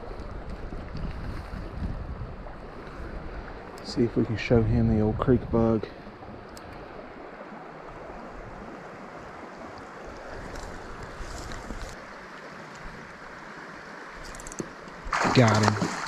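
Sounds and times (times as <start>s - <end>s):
wind buffeting microphone: 0.0s - 7.2s
creek water rushing: 5.8s - 16.0s.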